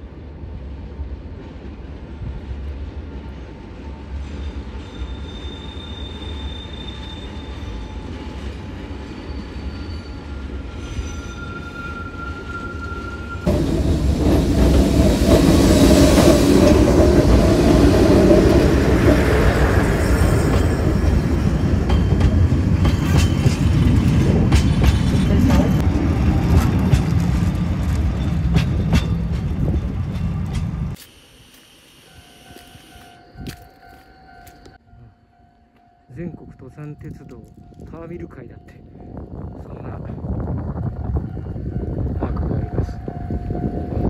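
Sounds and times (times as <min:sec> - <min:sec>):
train wheels rumbling and rattling: 0:00.0 - 0:31.0, 0:36.4 - 0:44.0
high wheel squeals: 0:04.2 - 0:13.5, 0:31.6 - 0:34.8.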